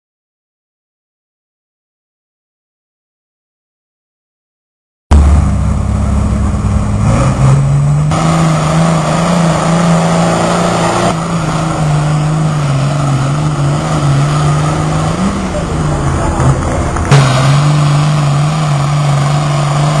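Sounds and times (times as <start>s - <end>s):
truck engine running hard: 5.1s - 20.0s.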